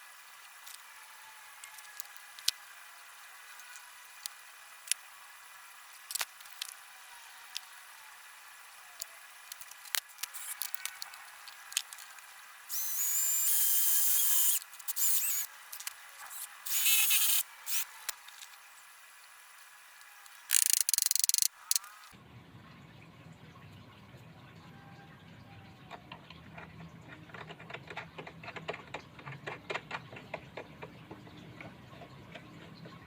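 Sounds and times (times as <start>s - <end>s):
power drill whining: 12.7s - 15.5s, 16.7s - 17.8s.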